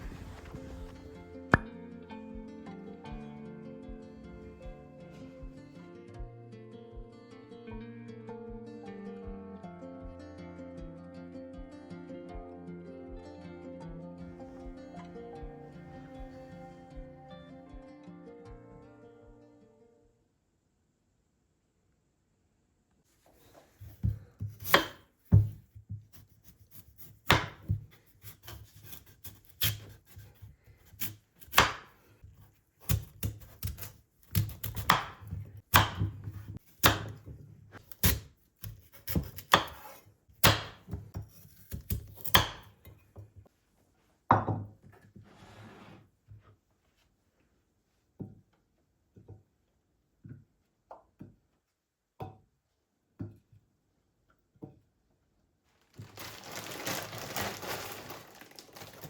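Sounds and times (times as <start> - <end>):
knife chopping on cutting board: 23.8 - 42.8.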